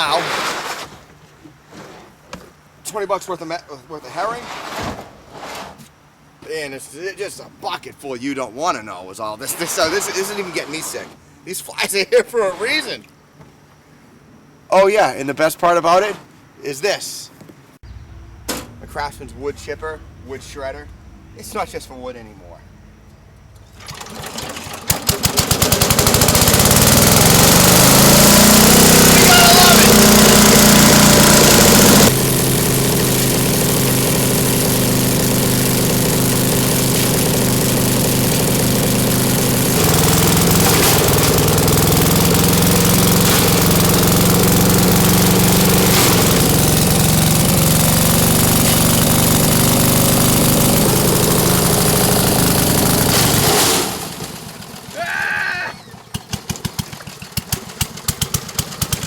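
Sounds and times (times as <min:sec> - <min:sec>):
chipper-shredder engine running: 0:23.8 - 0:55.2, 0:55.8 - 0:59.0
rapid irregular ticking: 0:25.4 - 0:53.6.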